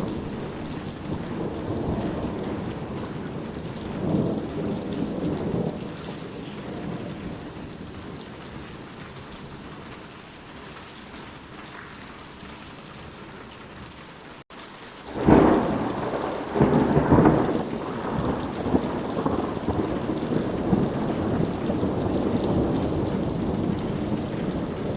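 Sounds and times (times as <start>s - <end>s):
thunder rumbling: 0.0s - 9.0s, 15.1s - 24.9s
steady rain: 0.0s - 24.9s.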